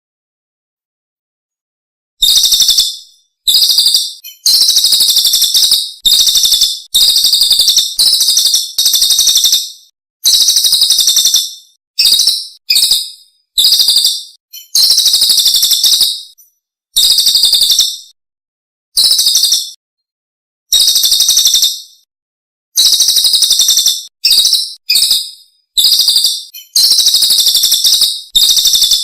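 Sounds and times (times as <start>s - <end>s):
songbird trilled song: 2.2s - 18.1s, 19.0s - 19.8s, 22.8s - 29.0s.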